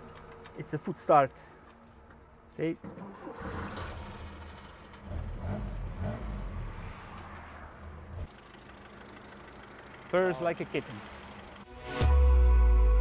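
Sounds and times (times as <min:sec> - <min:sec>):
petrol engine running: 0:08.2 - 0:11.7.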